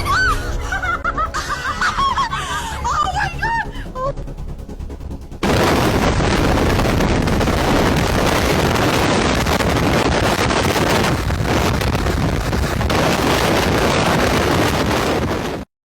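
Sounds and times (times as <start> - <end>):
steady rushing roar: 0.7 - 15.7
wind buffeting microphone: 5.4 - 15.7.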